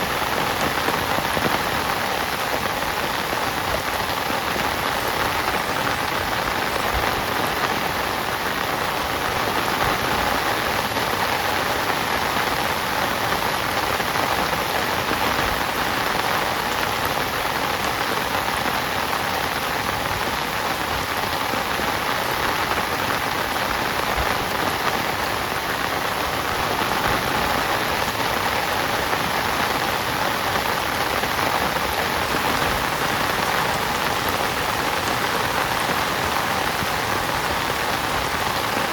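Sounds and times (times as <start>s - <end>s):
heavy rain on a tent: 0.0s - 38.9s.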